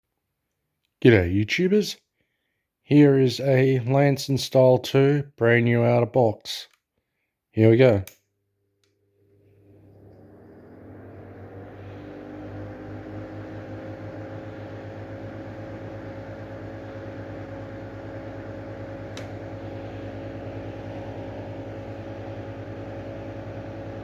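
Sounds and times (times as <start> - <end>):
exhaust fan whirring: 9.6 - 24.0.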